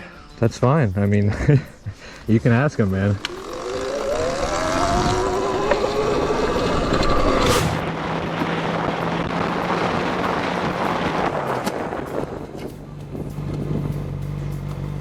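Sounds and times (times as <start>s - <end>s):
motorcycle engine hum: 1.4s - 15.0s
wind rushing over microphone: 3.0s - 14.1s
motor whining rising in pitch: 3.2s - 10.5s.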